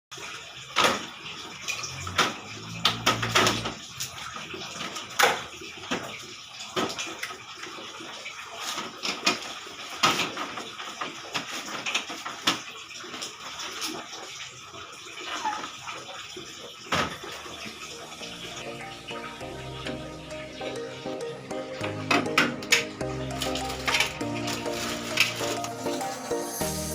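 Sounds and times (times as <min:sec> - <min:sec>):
water running and splashing: 0:00.1 - 0:26.9.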